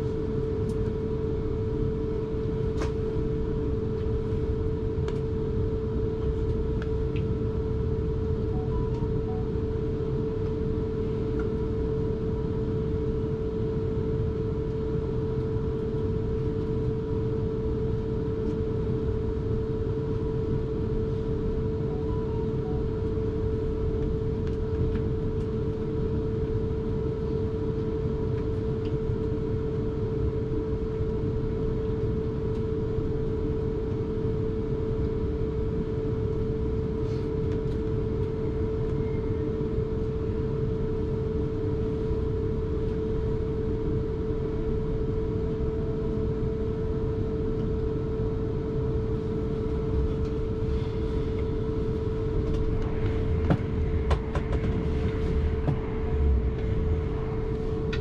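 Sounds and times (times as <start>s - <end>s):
electric train whine: 20.5s - 24.6s, 49.0s - 58.0s.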